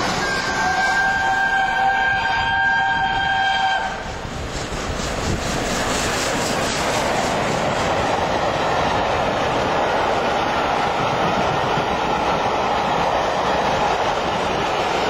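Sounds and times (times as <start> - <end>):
steam locomotive whistle: 0.0 - 4.1
steam train passing at speed: 0.0 - 15.0.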